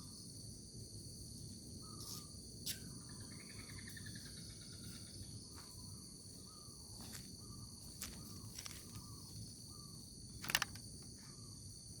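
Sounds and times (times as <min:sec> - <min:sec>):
crickets chirring: 0:00.0 - 0:12.0
sharp clicks: 0:10.4 - 0:10.8.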